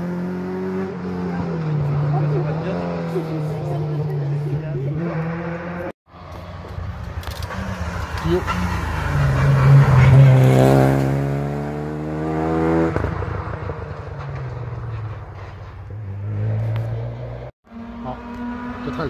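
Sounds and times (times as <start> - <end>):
rally car engine accelerating: 7.3 - 15.2.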